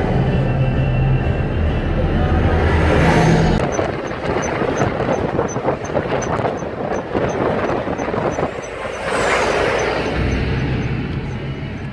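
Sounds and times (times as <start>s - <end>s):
motorway traffic rushing: 0.0s - 11.9s.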